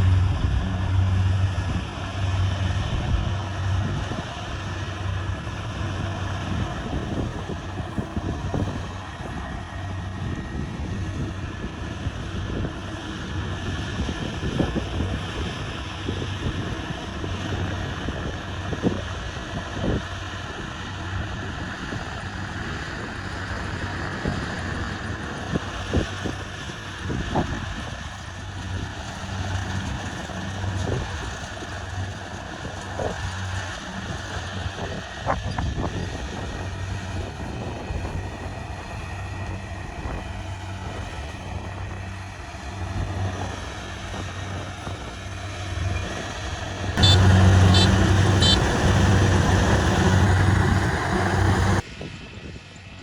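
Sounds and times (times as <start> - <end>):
combine harvester engine running: 0.0 - 51.8.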